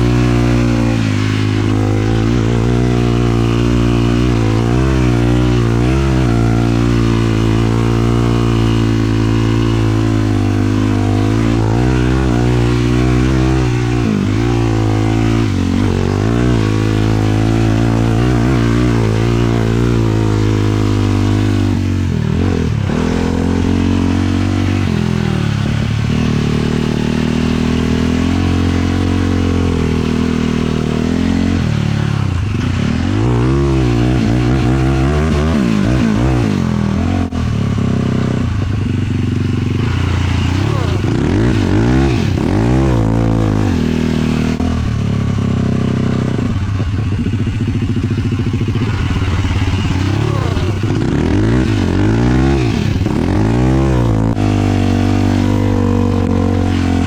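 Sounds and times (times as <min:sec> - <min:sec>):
quad engine revving: 0:00.0 - 0:57.0.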